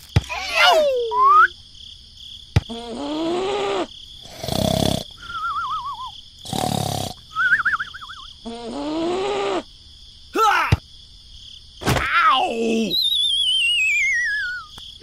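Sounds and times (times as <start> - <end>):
cartoon snoring: 2.7 - 5.3, 6.4 - 7.2, 8.4 - 9.6.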